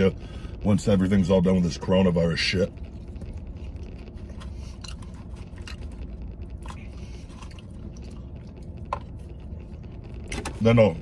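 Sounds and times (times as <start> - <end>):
vehicle cabin hum: 0.0 - 11.0
man chewing food: 2.8 - 10.3.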